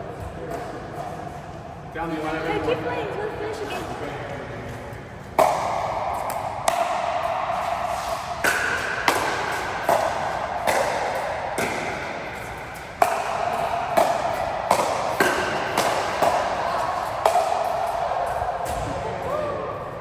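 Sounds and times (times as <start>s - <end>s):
table tennis ball strikes: 5.4s - 7.6s, 8.4s - 17.6s.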